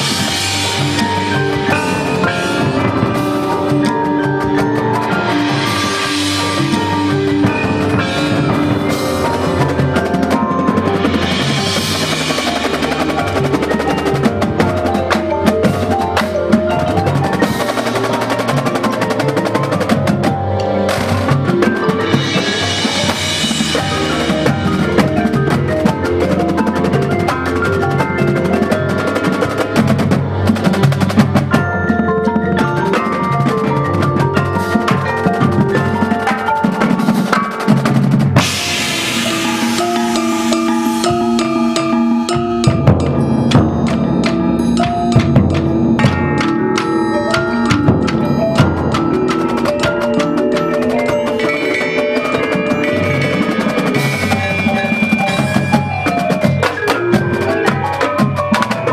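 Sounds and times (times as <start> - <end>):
marching band playing: 0.0 - 58.9
wood block: 0.0 - 58.9
snare drum rolls: 32.8 - 58.9.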